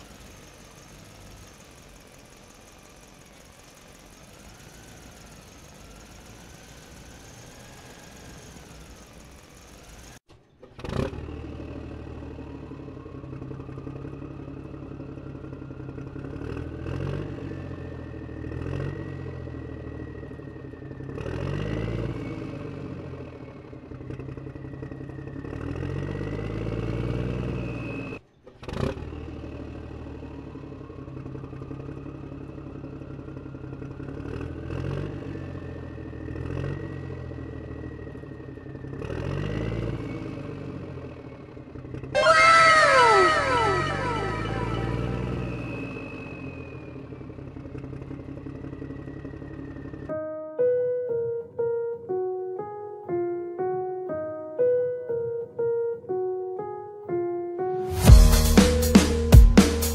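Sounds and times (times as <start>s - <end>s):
different engine sound: 0.0s - 55.3s
vehicle engine revving: 3.4s - 20.2s, 21.0s - 23.2s, 24.0s - 30.3s, 33.8s - 50.1s.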